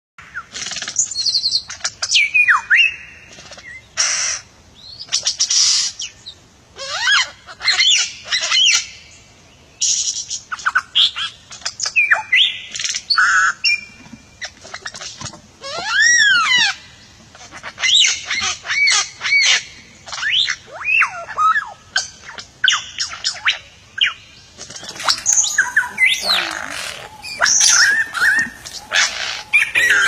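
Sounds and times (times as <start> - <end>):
bird whistling and rasping: 24.7 - 30.0.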